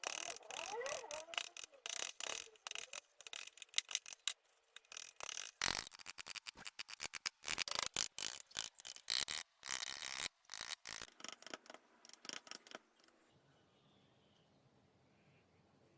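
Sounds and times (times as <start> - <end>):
carving tool scraping wood: 5.0 - 13.0.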